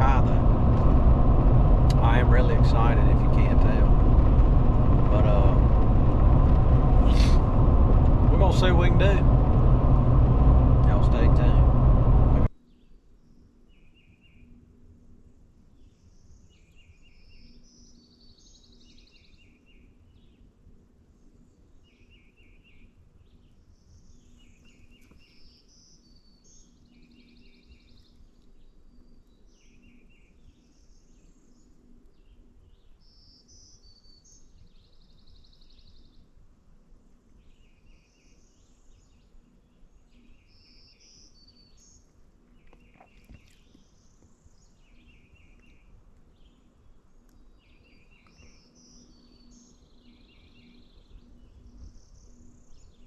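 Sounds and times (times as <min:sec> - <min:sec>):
faint low hum: 0:00.0 - 0:16.5
songbirds singing: 0:15.7 - 0:20.5, 0:21.1 - 0:36.4, 0:37.0 - 0:53.0.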